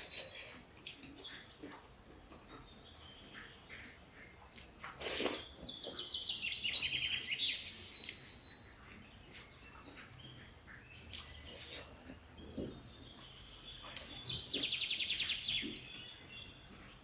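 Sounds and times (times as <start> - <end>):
bird chirps: 5.2 - 17.0.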